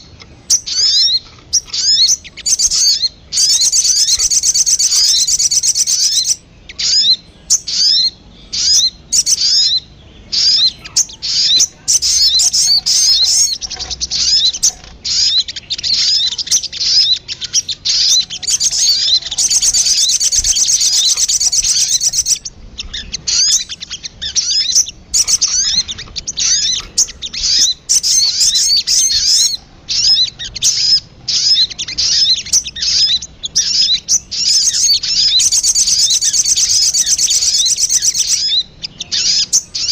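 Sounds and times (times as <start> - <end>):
rapid high-pitched bird chirps: 0.0 - 39.9
steady bird trill: 0.0 - 39.9.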